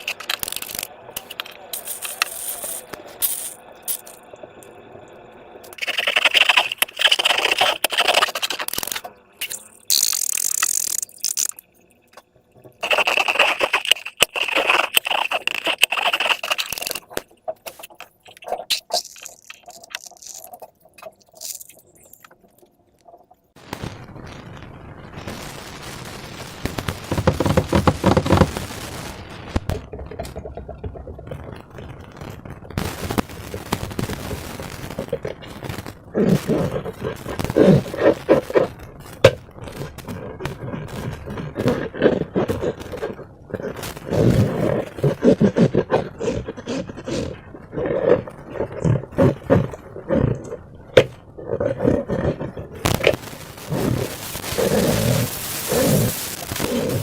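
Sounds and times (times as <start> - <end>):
slime squishing and scraping: 5.8 - 11.6, 12.8 - 22.4, 27.1 - 28.6, 36.2 - 57.0.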